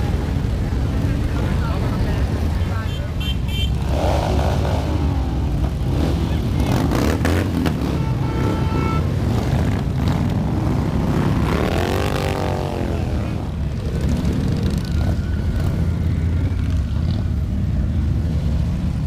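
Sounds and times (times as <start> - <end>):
motorcycle engines revving: 0.0 - 19.0
horn tone: 7.8 - 9.2.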